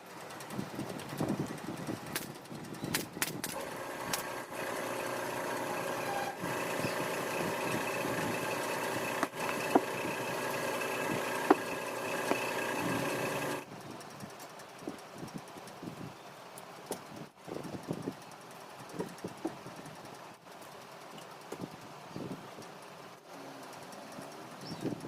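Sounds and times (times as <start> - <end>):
motor humming: 0.0 - 14.3
sharp clicks: 2.0 - 5.6, 6.3 - 14.6.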